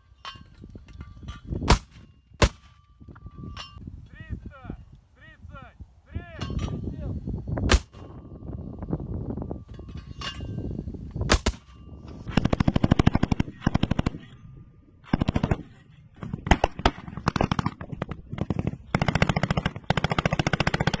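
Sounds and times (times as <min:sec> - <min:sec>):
single gunshots: 0:07.7 - 0:08.0, 0:11.3 - 0:11.6
automatic gunfire bursts: 0:12.3 - 0:14.2, 0:15.1 - 0:15.7, 0:18.4 - 0:21.0.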